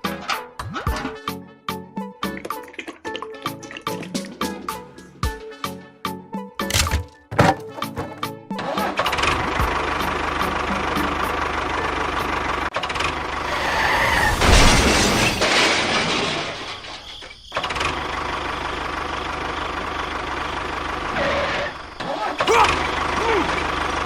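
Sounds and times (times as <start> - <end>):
engine running: 7.8 - 15.5, 17.6 - 24.0.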